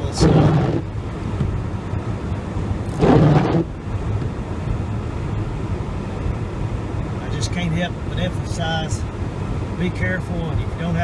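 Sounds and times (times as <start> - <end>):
vehicle engine and road rumble: 0.0 - 11.0
rushing noise burst: 3.0 - 3.7.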